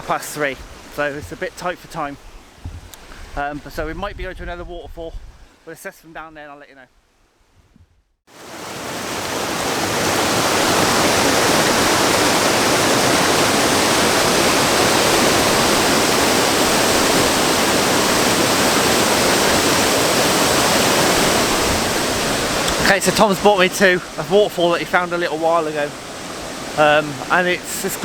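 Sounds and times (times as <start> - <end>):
waterfall rushing: 8.3 - 28.0.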